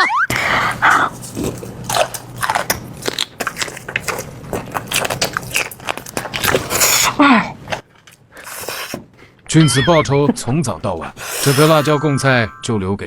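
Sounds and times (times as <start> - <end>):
person biting and chewing: 0.3 - 9.0, 11.1 - 11.9.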